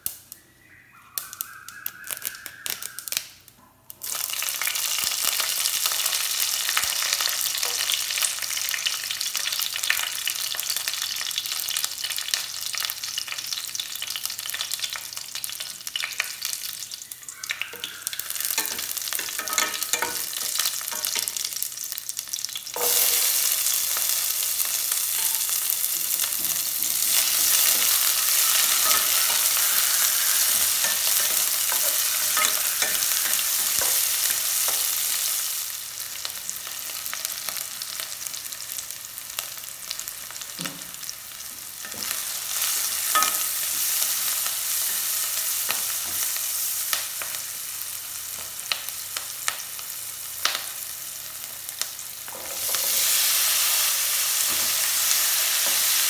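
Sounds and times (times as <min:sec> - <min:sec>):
onions sizzling in hot oil: 0:01.2 - 0:56.0
utensils clicking against pan: 0:18.5 - 0:21.5, 0:25.2 - 0:34.9.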